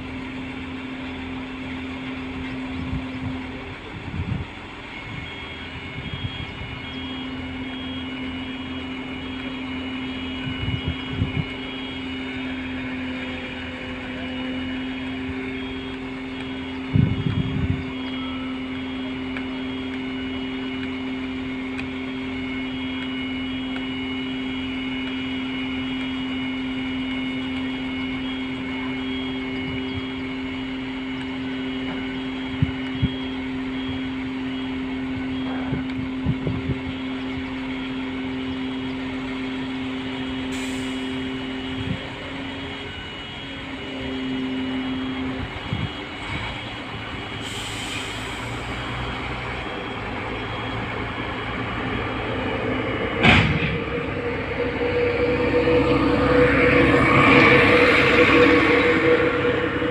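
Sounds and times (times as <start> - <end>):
truck engine and hydraulic whine: 0.0 - 59.9
high beep: 5.0 - 35.9, 49.6 - 59.9.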